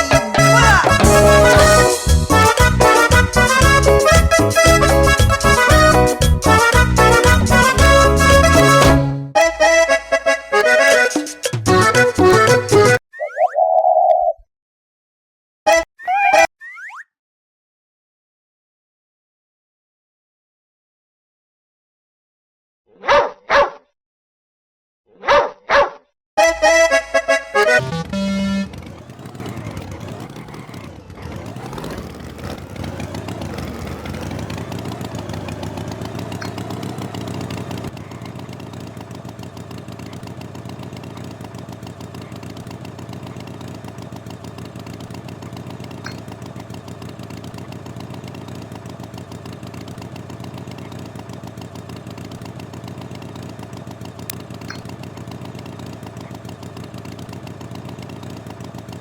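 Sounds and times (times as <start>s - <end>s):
engine revving and idling: 0.0s - 9.0s, 27.6s - 59.0s.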